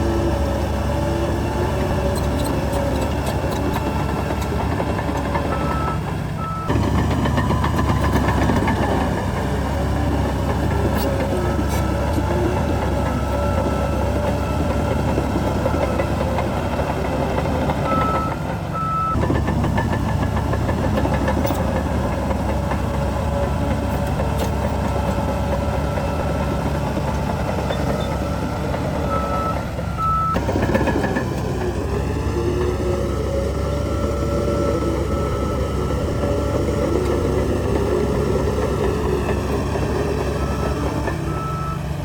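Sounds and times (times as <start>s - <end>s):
heavy diesel machinery rumbling: 0.0s - 42.0s
reversing alarm beeps: 5.5s - 6.7s, 17.8s - 19.2s, 29.1s - 30.4s, 40.4s - 41.8s.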